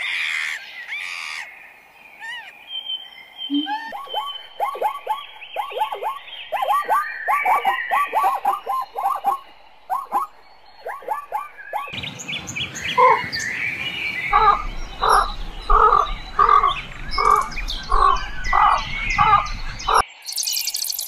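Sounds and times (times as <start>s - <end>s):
higher bird chirps: 0.2s - 21.0s
bird repeated call: 3.4s - 12.0s.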